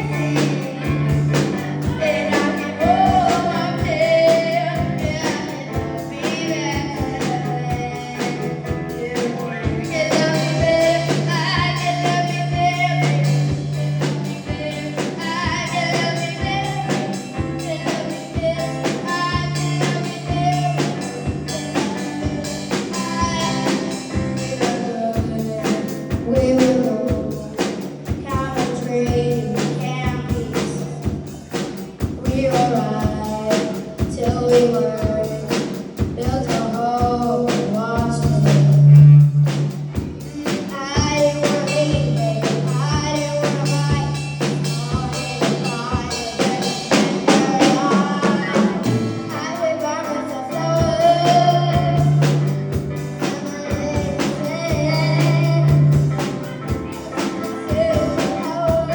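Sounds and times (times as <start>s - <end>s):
woman singing pop song: 0.0s - 31.5s, 32.2s - 39.2s, 40.3s - 52.4s, 53.0s - 58.9s
drums and bass accompaniment: 0.0s - 58.9s.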